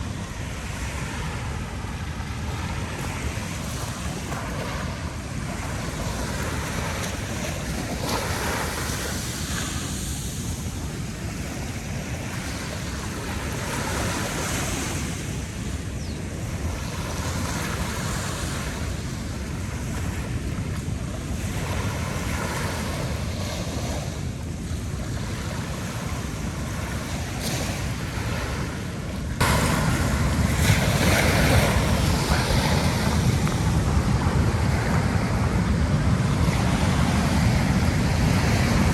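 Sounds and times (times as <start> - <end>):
ocean surf washing onto beach: 0.0 - 38.9
wind buffeting microphone: 0.0 - 38.9.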